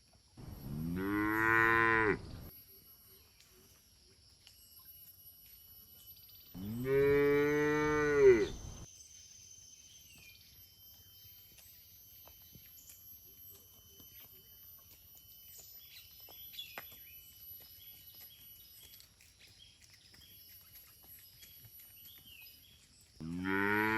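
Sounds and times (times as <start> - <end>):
cattle mooing: 0.4 - 2.5, 6.6 - 8.8, 23.2 - 23.9.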